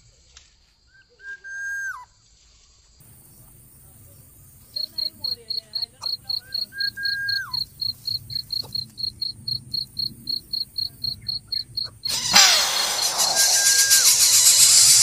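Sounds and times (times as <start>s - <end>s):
cricket chirping: 2.9s - 15.0s
whistle-like tone: 12.1s - 15.0s
rush of noise with rising sweep: 12.2s - 15.0s.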